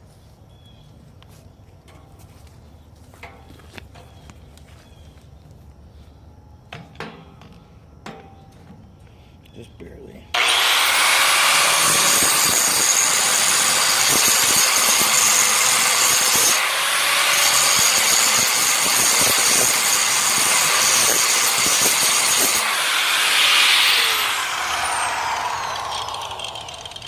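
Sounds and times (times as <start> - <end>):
power tool cutting metal: 10.4 - 27.0.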